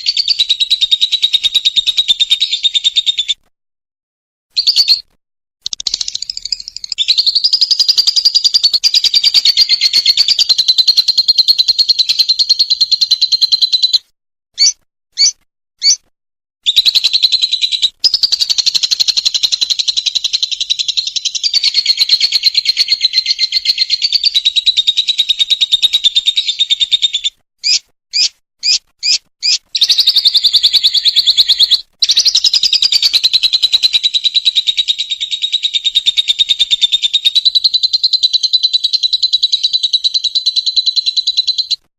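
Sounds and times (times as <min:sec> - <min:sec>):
lovebird rattling chatter trill: 0:05.6 - 0:13.9, 0:16.7 - 0:41.8
lovebird short chirps: 0:14.6 - 0:16.0, 0:16.6 - 0:36.1.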